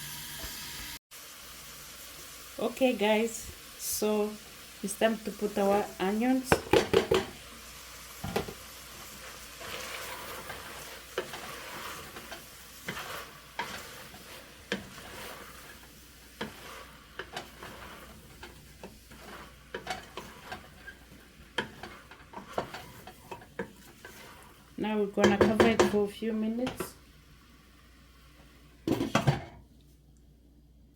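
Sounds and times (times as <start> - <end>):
onions sizzling in a frying pan: 0.0 - 29.4
utensil knocking against pan: 6.5 - 7.4, 25.2 - 26.0.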